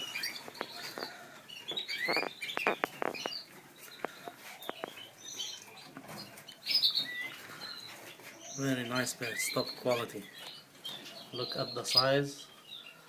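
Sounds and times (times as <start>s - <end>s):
canaries chirping: 0.0s - 13.0s
light clicks and taps: 4.0s - 5.0s.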